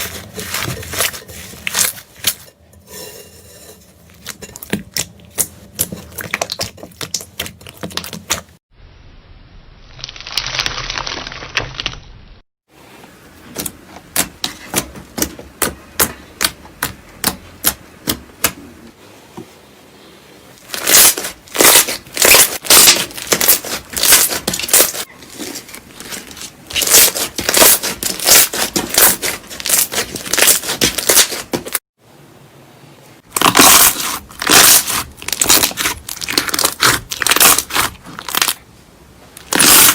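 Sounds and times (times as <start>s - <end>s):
slime popping and crackling: 10.0s - 12.1s, 20.7s - 25.1s, 33.4s - 38.6s, 39.4s - 39.9s.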